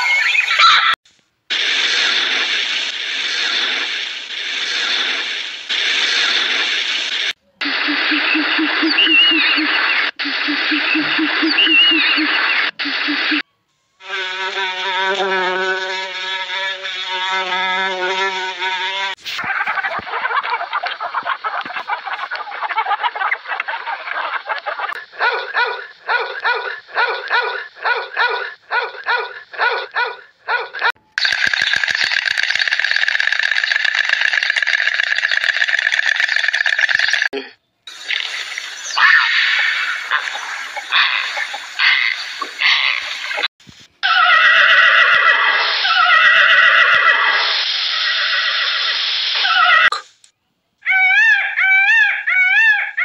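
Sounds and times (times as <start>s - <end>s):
dog barking: 25.0s - 30.9s
horses whinnying: 44.0s - 47.4s.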